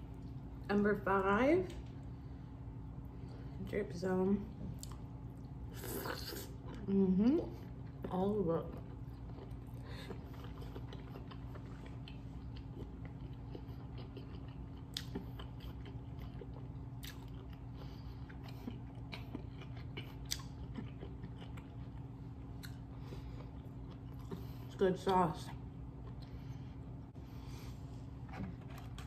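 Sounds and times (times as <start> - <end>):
low hum: 0.0 - 29.0
wet chewing: 7.8 - 24.7.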